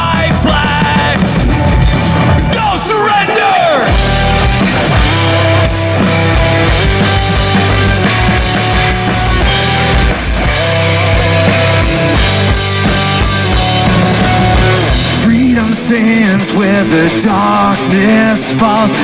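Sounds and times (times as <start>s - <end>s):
drum beat: 0.0s - 3.0s, 3.9s - 15.9s
instrumental rock band: 0.0s - 19.0s.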